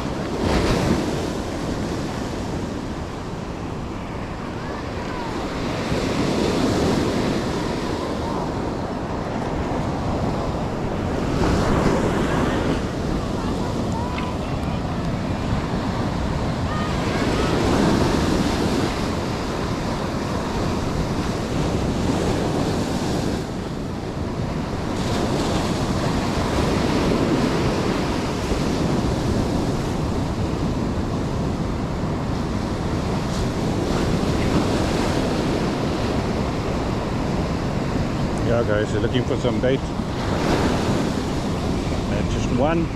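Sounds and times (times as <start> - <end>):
ocean surf breaking ashore: 0.0 - 42.9
wind buffeting the microphone: 0.0 - 42.9.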